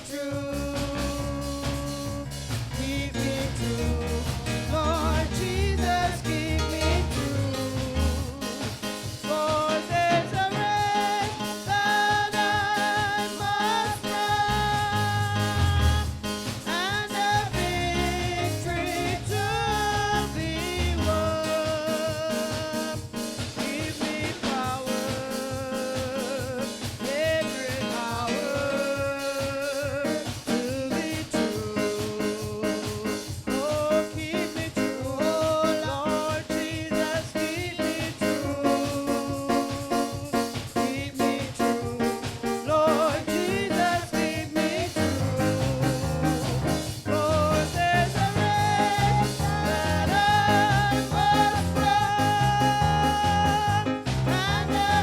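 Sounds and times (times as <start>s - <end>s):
band playing: 0.0s - 55.0s
deep bass: 0.5s - 8.5s, 14.5s - 16.4s, 17.3s - 21.4s, 45.0s - 55.0s
voices singing: 3.2s - 21.7s, 38.2s - 55.0s.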